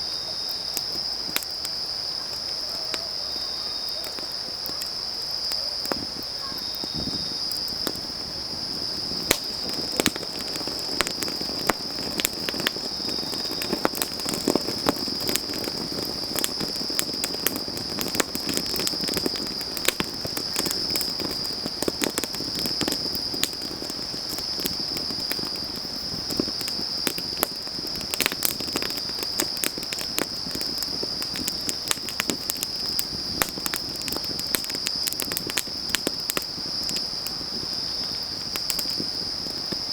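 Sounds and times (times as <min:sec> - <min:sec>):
insects trilling: 0:00.0 - 0:39.9
wood fire crackling: 0:00.0 - 0:39.9.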